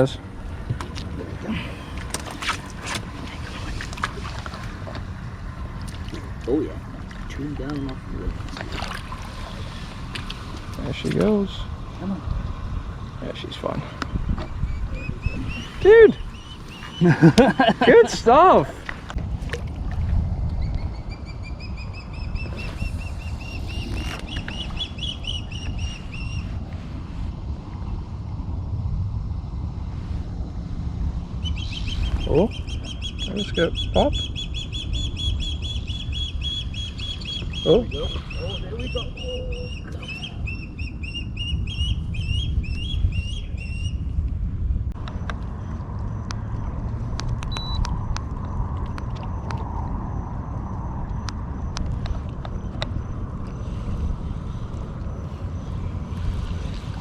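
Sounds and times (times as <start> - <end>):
low rumble of wind or water: 0.0 - 57.0
bird chirping: 14.0 - 17.2, 20.6 - 26.5, 31.4 - 44.0.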